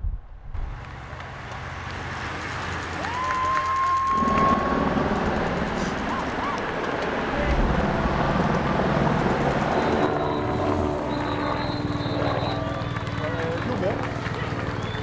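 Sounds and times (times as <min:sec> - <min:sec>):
road and wind noise: 0:00.0 - 0:15.0
high whistle-like tone: 0:09.7 - 0:13.4.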